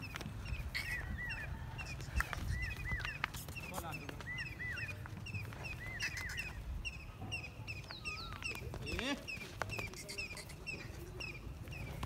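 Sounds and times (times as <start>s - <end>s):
bird chirping: 0.0s - 12.0s
whistled bird calls: 0.0s - 12.0s.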